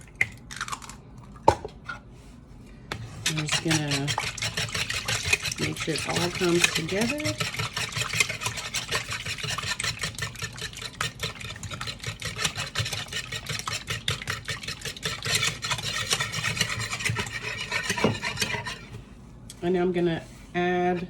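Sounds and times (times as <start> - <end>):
batter mixed in a bowl: 1.8 - 21.0.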